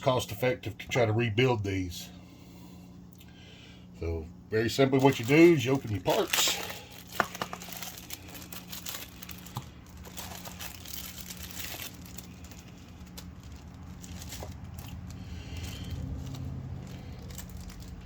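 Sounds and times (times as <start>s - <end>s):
low hum: 0.0s - 18.0s
plastic packaging crinkling: 4.6s - 18.0s.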